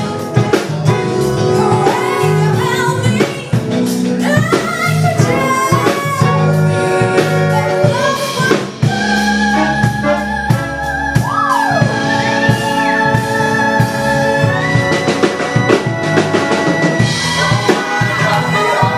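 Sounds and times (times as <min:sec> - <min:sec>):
band with drums: 0:00.0 - 0:18.9
woman singing: 0:00.8 - 0:14.8.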